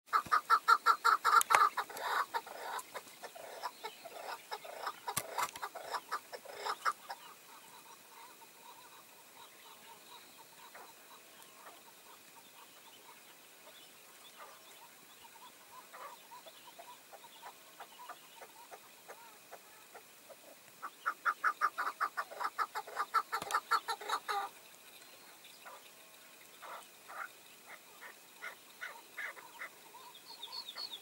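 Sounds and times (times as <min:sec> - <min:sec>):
partridges clucking: 0:04.6 - 0:07.1, 0:21.4 - 0:24.5.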